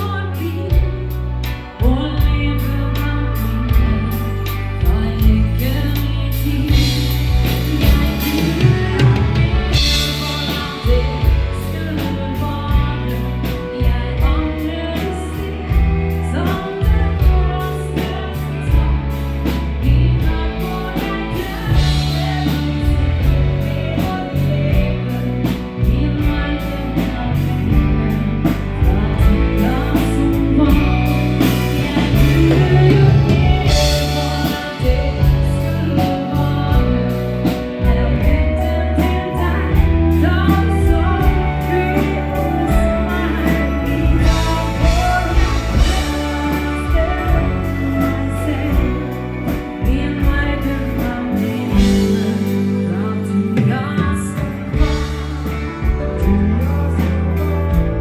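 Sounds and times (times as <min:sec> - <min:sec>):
bass line: 0:00.0 - 0:58.0
person singing: 0:00.0 - 0:58.0
steady drum beat: 0:03.4 - 0:52.9, 0:53.6 - 0:58.0.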